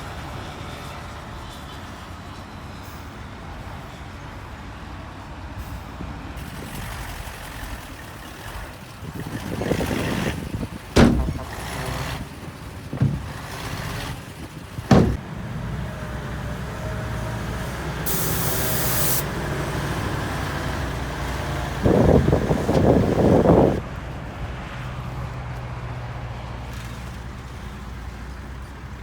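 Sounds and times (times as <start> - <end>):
heavy machinery running: 6.4 - 23.8
rough rumble: 6.5 - 15.8
sharp bangs: 11.0 - 14.2, 14.8 - 15.2
burst of hiss: 18.1 - 19.3.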